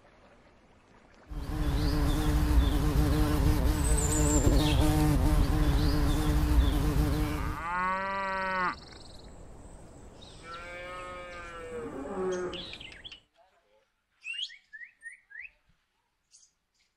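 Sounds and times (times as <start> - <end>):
bee buzzing: 1.3 - 7.7
cattle mooing: 7.2 - 8.8.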